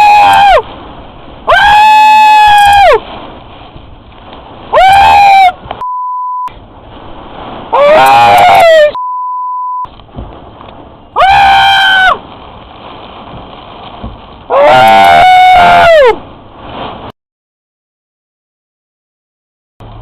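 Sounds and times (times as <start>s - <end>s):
man screaming: 0.0s - 0.6s, 1.5s - 3.0s, 4.8s - 5.6s, 7.8s - 9.0s, 11.2s - 12.2s, 14.5s - 16.2s
rushing storm noise: 0.0s - 5.9s, 6.5s - 9.0s, 9.9s - 17.2s
censor bleep: 5.8s - 6.5s, 9.0s - 9.9s.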